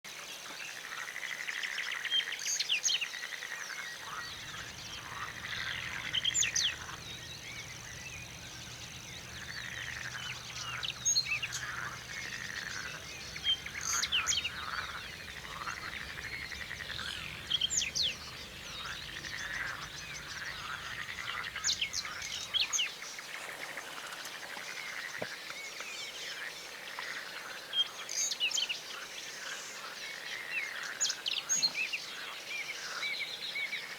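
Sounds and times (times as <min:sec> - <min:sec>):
frogs calling: 0:00.8 - 0:25.6
birds calling: 0:03.9 - 0:26.2
low steady hum: 0:04.1 - 0:22.7.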